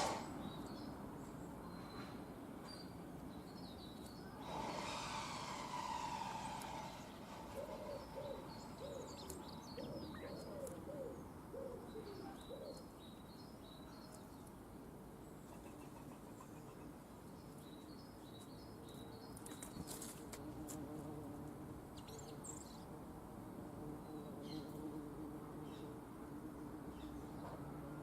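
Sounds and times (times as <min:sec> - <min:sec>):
songbird chirping: 0:00.0 - 0:20.5
low cooing bird call: 0:04.2 - 0:12.9.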